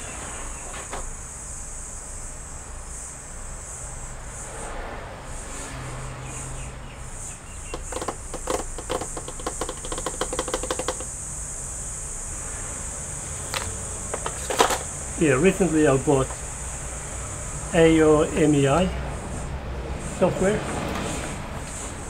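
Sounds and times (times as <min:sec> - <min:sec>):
steady high-pitched hiss: 0:00.0 - 0:22.0
rapid clicking rattle: 0:07.6 - 0:11.3, 0:13.5 - 0:15.0.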